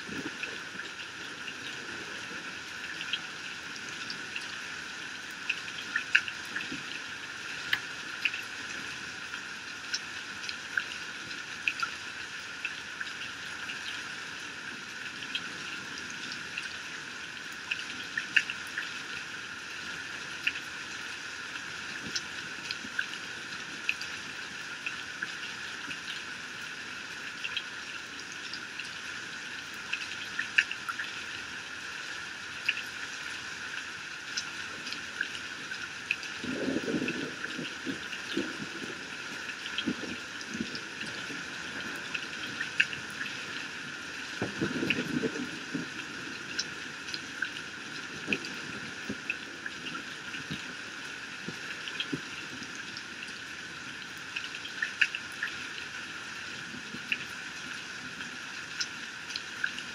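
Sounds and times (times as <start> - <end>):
raindrops tapping close by: 0.0 - 59.9
heavy rain falling: 33.6 - 54.2.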